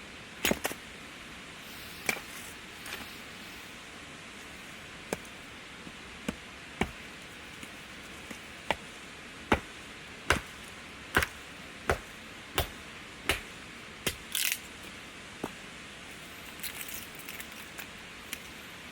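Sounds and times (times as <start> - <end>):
firewood being chopped: 0.4 - 0.8, 2.0 - 3.0, 5.0 - 14.7, 15.4 - 15.6.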